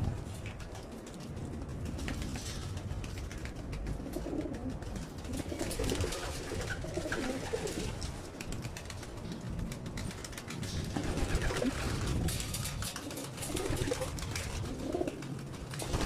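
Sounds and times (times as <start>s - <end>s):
pigeons cooing softly: 3.8s - 8.1s, 12.9s - 15.8s.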